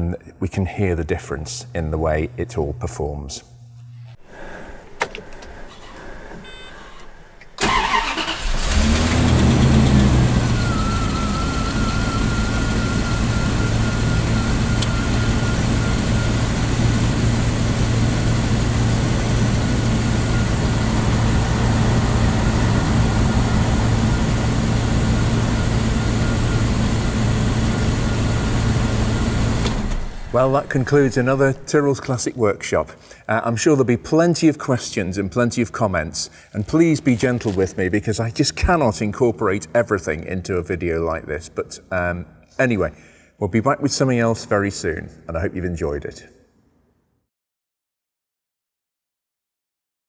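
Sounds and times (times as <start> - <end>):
thin whine: 1.3 - 4.7, 10.5 - 31.7
starter motor cranking: 7.5 - 17.0
car engine idling: 7.6 - 31.6.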